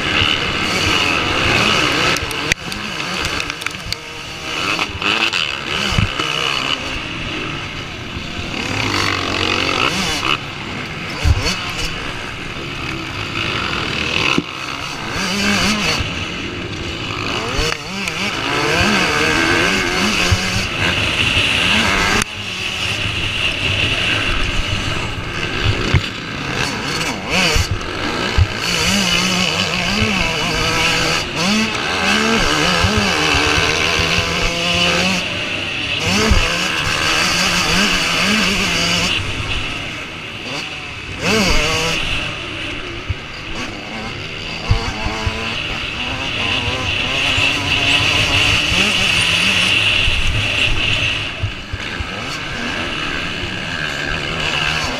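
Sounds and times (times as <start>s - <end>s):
motocross bike engines revving: 0.0s - 54.9s.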